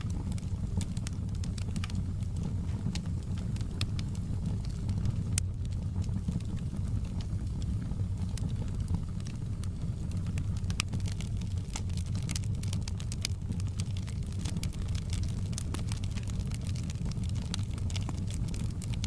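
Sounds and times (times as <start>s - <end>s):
wood fire crackling: 0.0s - 19.0s
logs popping and snapping: 10.4s - 19.0s.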